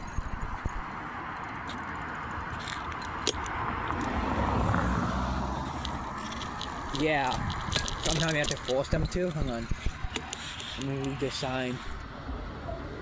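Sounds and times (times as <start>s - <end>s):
outdoor background rush: 0.0s - 13.0s
car driving past: 3.6s - 6.3s.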